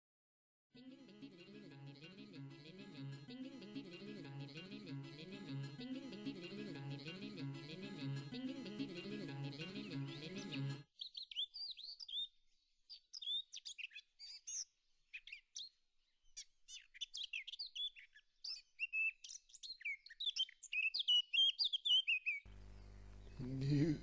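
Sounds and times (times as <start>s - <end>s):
songbird singing: 11.0s - 15.8s, 16.4s - 23.6s.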